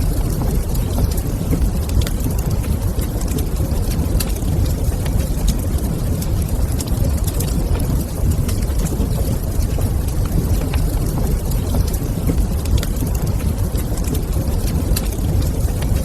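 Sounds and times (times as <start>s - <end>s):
log fire crackling: 0.0s - 16.0s.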